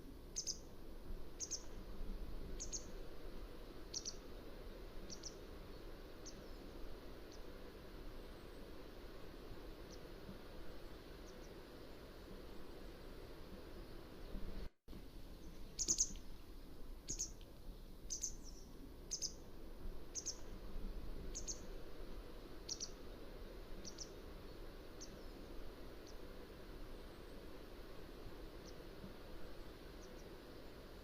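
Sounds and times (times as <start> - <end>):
bird high chirps: 0.4 - 0.7, 1.4 - 1.7, 2.6 - 2.9, 3.9 - 4.2, 15.4 - 16.2, 17.1 - 17.4, 18.1 - 19.4, 20.1 - 20.5, 21.3 - 21.7, 22.7 - 23.0.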